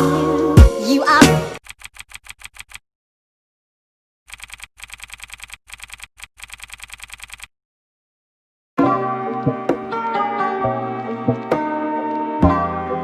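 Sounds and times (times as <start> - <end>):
keyboard typing clicks: 1.6 - 2.8, 4.3 - 7.5.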